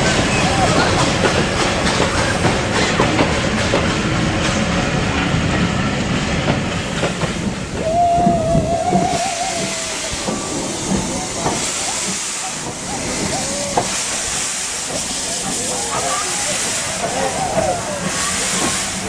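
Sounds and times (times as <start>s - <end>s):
train wheels clattering over joints: 0.0s - 19.0s
steam locomotive whistle: 7.7s - 11.6s.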